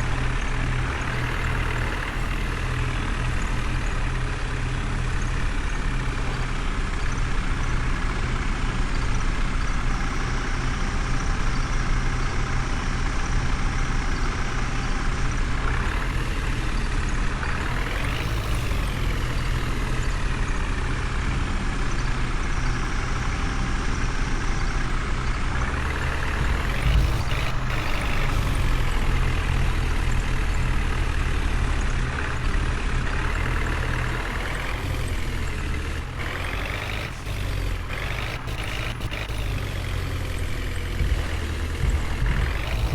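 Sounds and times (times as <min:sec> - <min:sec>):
diesel engine revving: 0:00.0 - 0:42.9.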